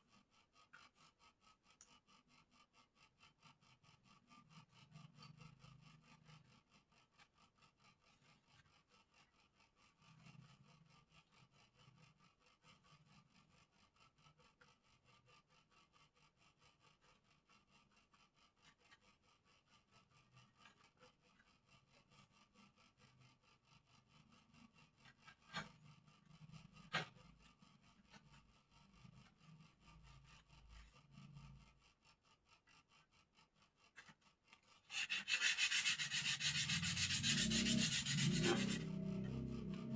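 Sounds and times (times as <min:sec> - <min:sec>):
hand rubbing wood: 0:34.9 - 0:38.9.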